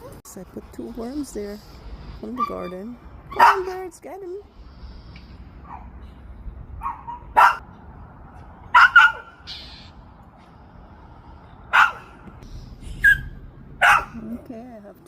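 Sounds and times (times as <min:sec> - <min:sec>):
dog barking: 0:03.3 - 0:03.8, 0:06.8 - 0:07.6, 0:08.7 - 0:09.4, 0:11.7 - 0:12.2, 0:13.0 - 0:14.2.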